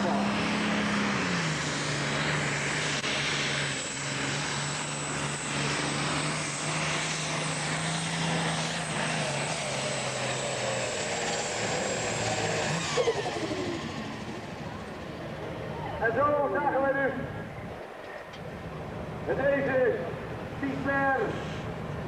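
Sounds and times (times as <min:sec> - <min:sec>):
engine running with deep hum: 0:00.0 - 0:16.3.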